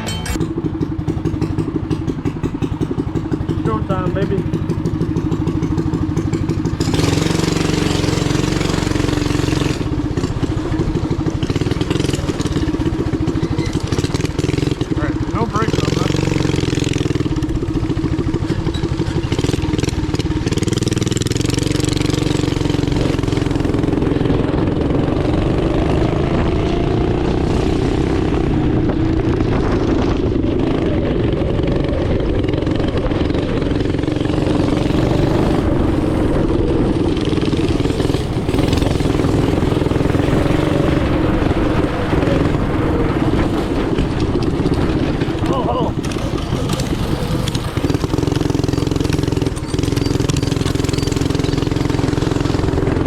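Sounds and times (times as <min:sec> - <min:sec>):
small engine revving high: 0:06.5 - 0:17.3, 0:33.1 - 0:43.8, 0:45.9 - 0:53.0.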